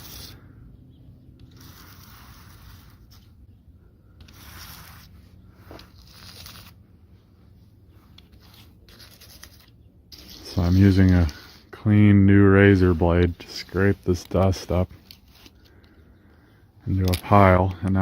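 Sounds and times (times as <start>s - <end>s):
razor blade scraping paint: 0.0s - 0.4s, 1.2s - 3.5s, 4.1s - 6.8s, 8.1s - 11.9s, 12.7s - 15.9s.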